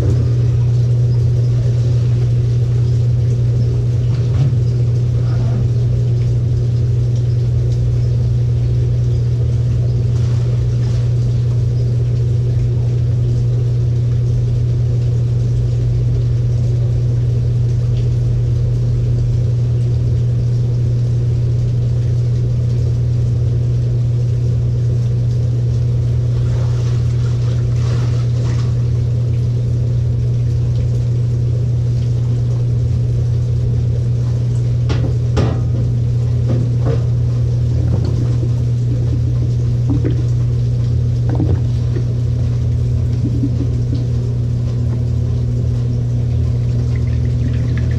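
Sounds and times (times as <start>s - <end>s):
faint knocks and sloshes: 0.0s - 7.9s, 9.7s - 12.8s, 26.1s - 30.9s, 34.1s - 47.9s
washing machine humming: 0.0s - 47.9s.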